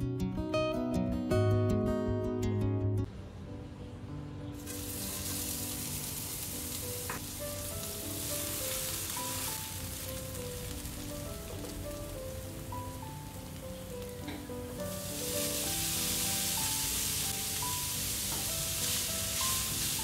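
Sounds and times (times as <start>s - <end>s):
garlic sizzling in hot oil: 4.6s - 20.0s.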